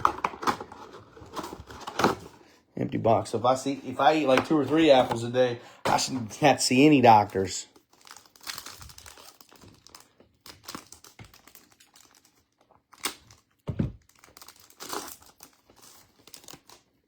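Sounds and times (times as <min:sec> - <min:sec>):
foil wrappers crinkling and tearing: 0:06.0 - 0:17.0.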